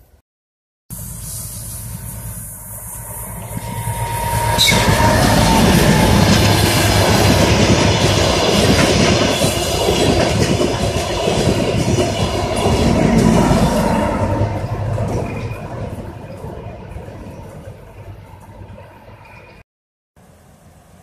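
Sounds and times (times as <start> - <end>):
train rumbling past: 0.9 - 19.6
wheels clattering over rail joints: 4.6 - 19.6.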